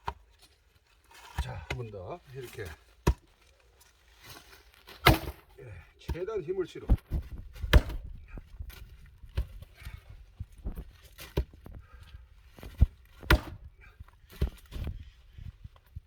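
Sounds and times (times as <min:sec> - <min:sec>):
axe striking wood: 0:03.0 - 0:03.3, 0:04.9 - 0:05.5, 0:07.1 - 0:08.8, 0:12.7 - 0:13.7.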